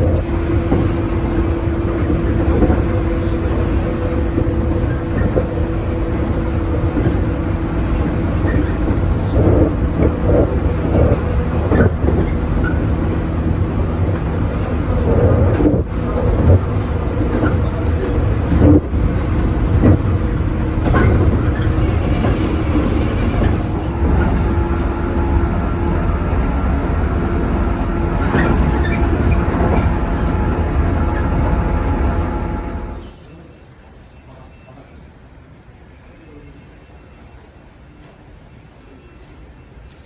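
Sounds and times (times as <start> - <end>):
train rumbling on rails: 5.5 - 33.2
electric motor hum: 23.5 - 33.1
wheels clicking and clattering: 23.5 - 33.1.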